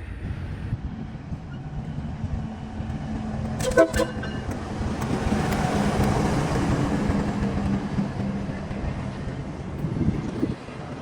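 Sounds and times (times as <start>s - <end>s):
locomotive low rumble: 0.0s - 11.0s
rail and wheel noise: 0.0s - 11.0s
train horn toot: 3.6s - 4.4s.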